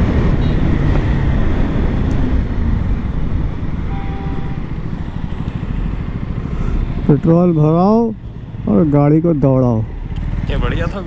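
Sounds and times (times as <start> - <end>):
wind buffeting on microphone: 0.0 - 8.6
motorcycle engine running: 0.0 - 10.9.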